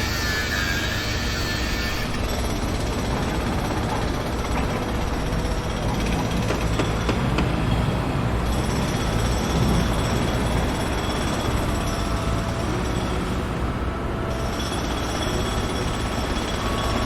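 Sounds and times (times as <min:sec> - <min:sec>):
diesel engine rumbling: 0:02.3 - 0:14.5.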